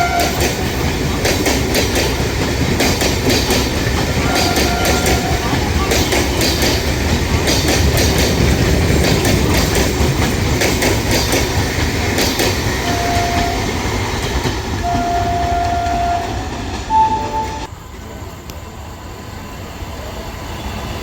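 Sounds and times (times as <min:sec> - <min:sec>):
wheels clacking over rail joints: 0:00.0 - 0:17.7
train rumbling on track: 0:00.0 - 0:21.0.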